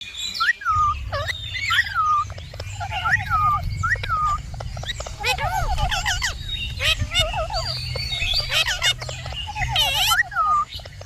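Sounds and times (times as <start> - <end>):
wavering bird trills: 0.0 - 11.0
bird whistled rising call: 0.3 - 8.8
steady low rumble: 0.6 - 11.0.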